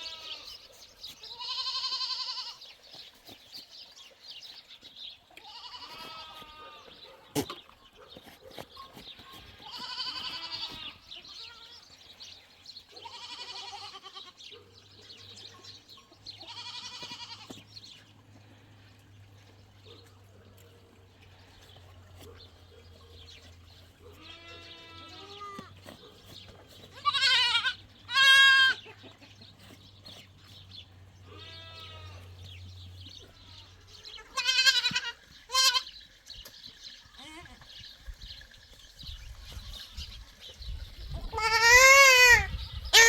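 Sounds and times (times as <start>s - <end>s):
goats bleating: 0.0s - 0.6s, 1.2s - 2.7s, 5.4s - 7.6s, 9.2s - 11.9s, 13.0s - 14.4s, 16.4s - 17.6s, 24.1s - 25.8s, 26.8s - 29.3s, 31.2s - 32.4s, 33.3s - 36.0s, 37.2s - 37.8s, 41.3s - 43.0s.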